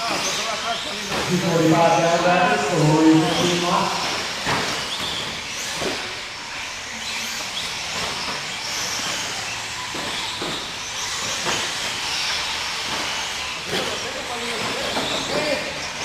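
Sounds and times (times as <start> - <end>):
small engines whining: 0.0 - 16.0.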